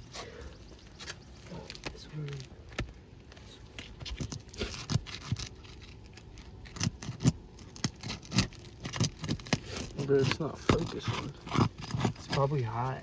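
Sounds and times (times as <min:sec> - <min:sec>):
hand tool scraping roof shingles: 0:04.0 - 0:13.0.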